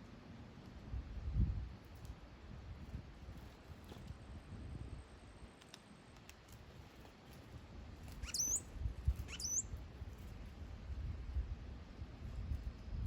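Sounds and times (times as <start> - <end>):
bird giving high swooping calls: 8.2 - 9.7.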